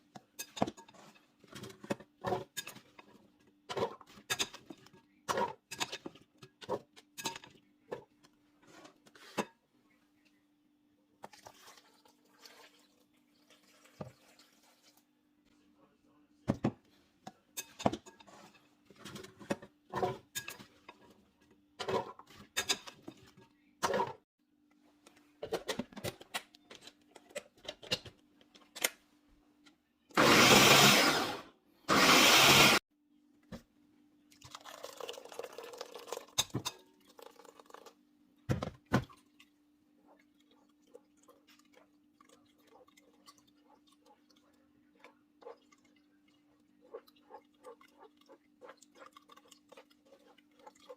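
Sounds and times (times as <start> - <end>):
blender running: 30.1 - 32.8.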